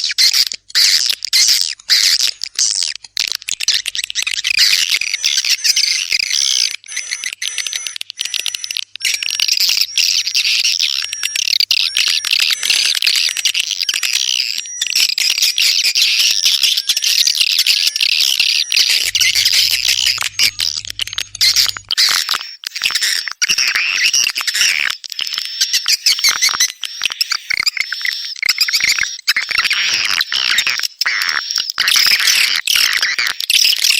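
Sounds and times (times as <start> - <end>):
swiftlets twittering and clicking: 18.1 - 22.2.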